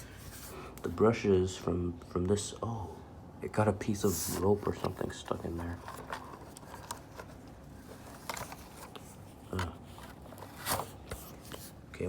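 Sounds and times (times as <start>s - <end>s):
brushes scraping and rustling: 0.0s - 0.7s, 4.0s - 11.8s.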